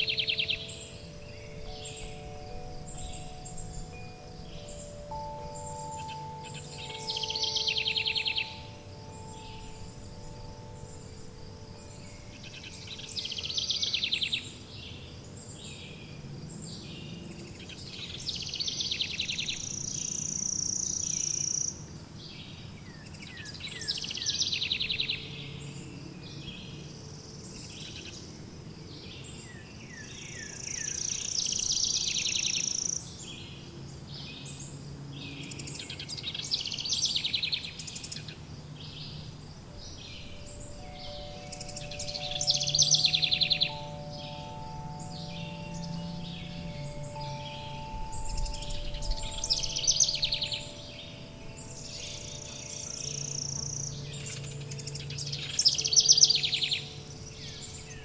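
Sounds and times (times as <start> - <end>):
wind chime tones: 0.0 - 15.4, 39.6 - 58.0
songbirds trilling: 0.0 - 58.0
low ambient hum: 32.7 - 58.0.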